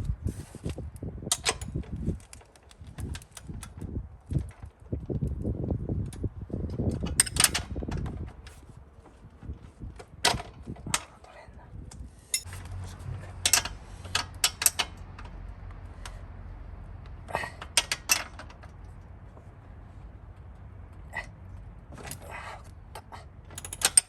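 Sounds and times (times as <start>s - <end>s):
sharp clicks and clinks: 21.9s - 24.0s.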